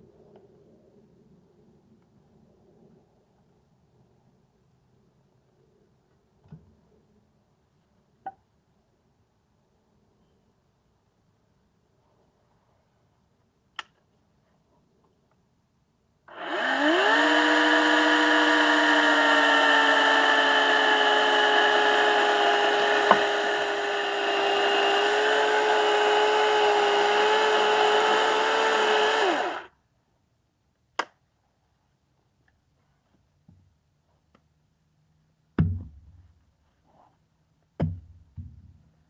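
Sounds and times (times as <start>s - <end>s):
electric saw cutting wood: 16.3s - 29.7s.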